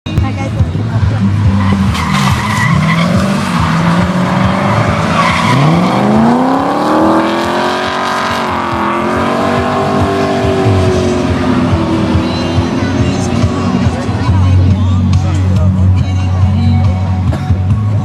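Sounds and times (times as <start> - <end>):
car engine revving: 0.2 - 17.0
tyres squealing: 1.4 - 6.6.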